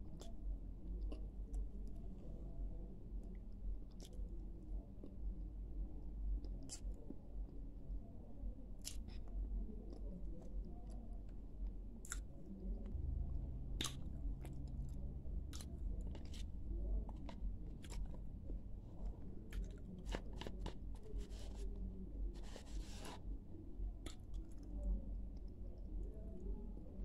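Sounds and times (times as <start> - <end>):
person chewing crunchy clay: 15.5 - 21.6.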